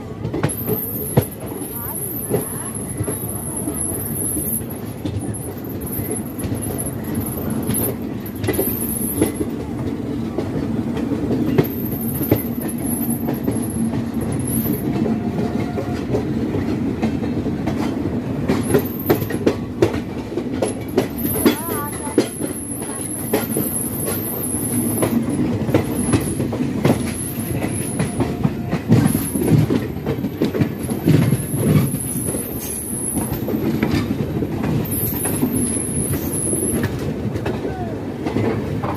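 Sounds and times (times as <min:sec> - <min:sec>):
train coaches rumbling: 0:00.0 - 0:38.9
wheels clacking over rail joints: 0:00.1 - 0:38.9.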